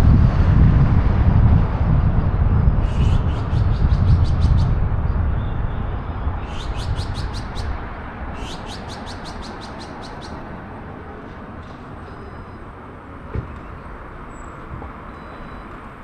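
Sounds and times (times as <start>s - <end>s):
low traffic rumble: 0.0s - 16.0s
bird chirping: 2.8s - 4.7s, 5.3s - 10.5s.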